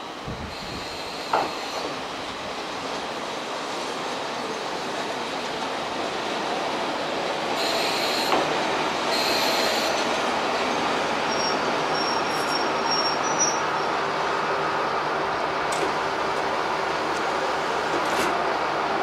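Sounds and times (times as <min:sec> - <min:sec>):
diesel railcar rolling: 0:00.0 - 0:19.0
high brake squeals: 0:07.6 - 0:08.4, 0:09.1 - 0:10.0, 0:11.2 - 0:14.0
thin steady high squeal: 0:11.3 - 0:13.9.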